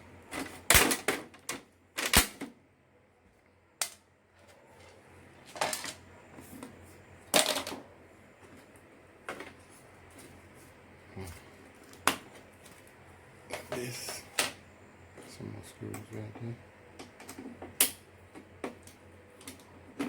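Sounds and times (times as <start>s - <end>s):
plastic parts clicking and clattering: 0.4s - 2.5s, 4.8s - 6.0s, 7.3s - 7.8s.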